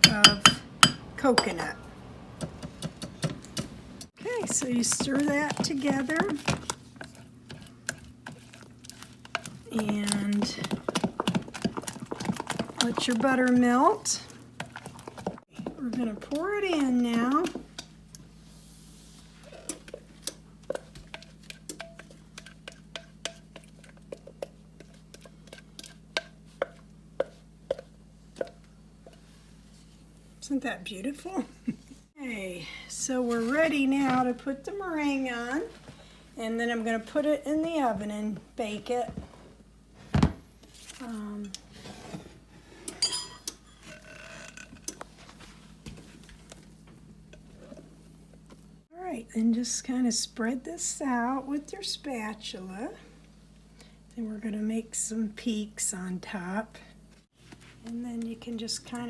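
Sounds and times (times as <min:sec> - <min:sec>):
spoon clinking against bowl: 0:00.0 - 0:01.6, 0:43.0 - 0:43.6
utensil scraping and tapping bowl: 0:00.0 - 0:01.7, 0:02.4 - 0:18.3, 0:19.4 - 0:29.3.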